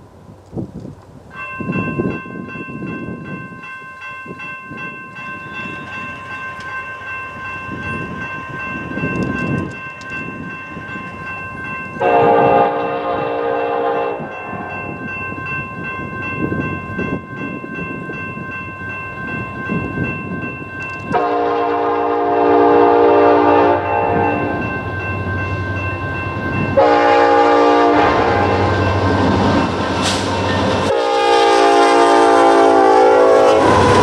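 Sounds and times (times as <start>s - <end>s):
moving train noise: 0.0s - 34.0s
locomotive air horn blasts: 12.0s - 14.7s, 21.1s - 24.5s, 26.8s - 29.0s, 30.9s - 34.0s.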